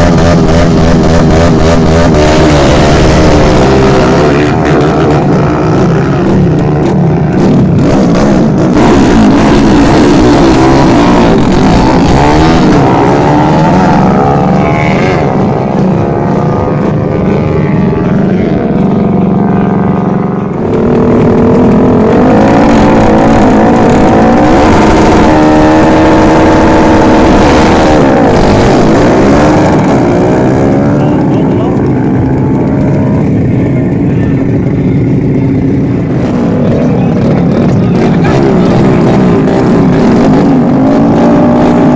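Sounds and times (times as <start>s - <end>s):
motorcycle engines accelerating: 0.0s - 41.9s.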